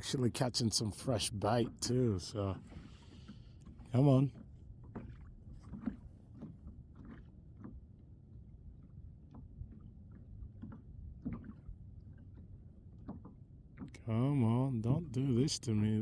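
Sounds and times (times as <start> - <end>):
quiet water lapping: 0.0 - 16.0
clicks and knocks on hull: 2.6 - 8.0, 8.8 - 14.2.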